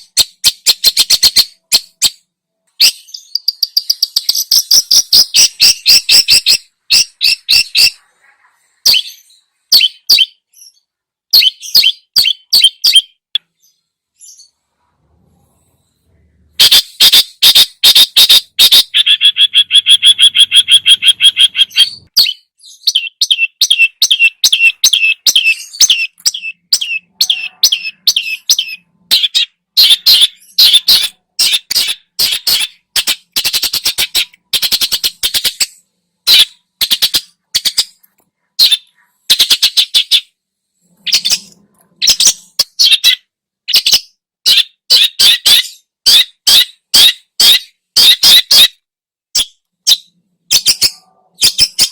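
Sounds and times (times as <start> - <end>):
shrike singing: 16.5 - 31.7.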